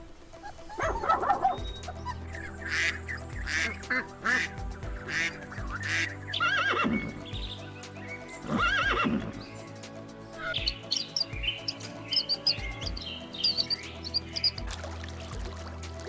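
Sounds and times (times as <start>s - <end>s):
background music: 0.0s - 16.0s
animal calls: 0.3s - 4.5s.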